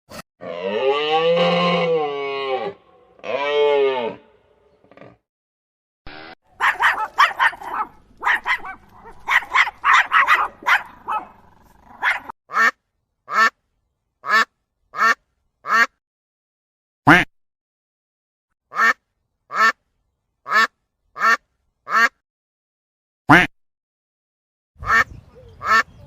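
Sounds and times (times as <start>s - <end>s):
ducks quacking: 14.2s - 15.9s, 18.7s - 19.8s, 20.5s - 22.2s, 24.8s - 26.0s.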